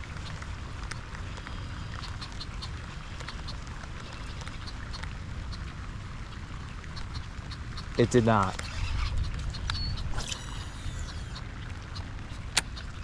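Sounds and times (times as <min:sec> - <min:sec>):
light irregular ticks: 0:00.0 - 0:13.0
wind rumble on microphone: 0:02.7 - 0:13.0.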